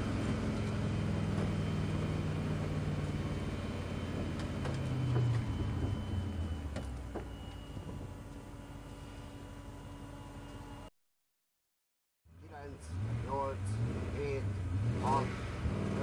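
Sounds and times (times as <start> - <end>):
rally car engine: 0.0 - 7.7, 12.3 - 16.0.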